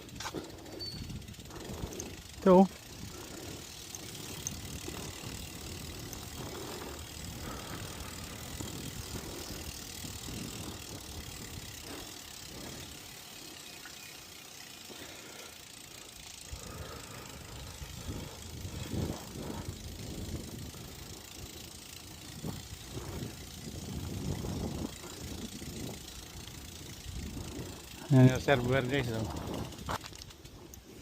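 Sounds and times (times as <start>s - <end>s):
bicycle rattles and knocks: 0.0s - 31.0s
wind and road noise: 0.0s - 31.0s.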